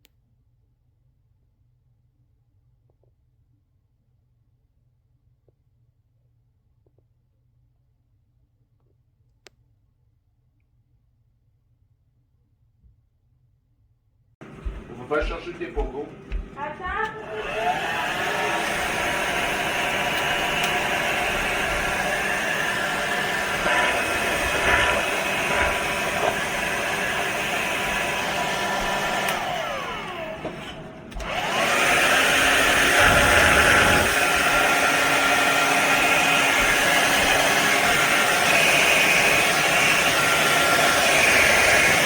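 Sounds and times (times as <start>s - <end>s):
hair dryer running: 14.4s - 42.0s.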